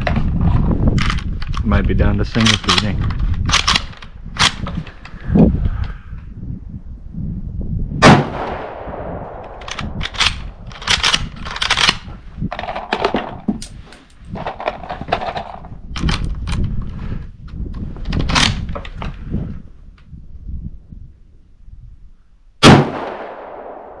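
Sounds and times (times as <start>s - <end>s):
rifle action clicking: 2.4s - 4.8s, 9.4s - 12.1s
gunshot: 8.0s - 9.4s, 22.6s - 24.0s.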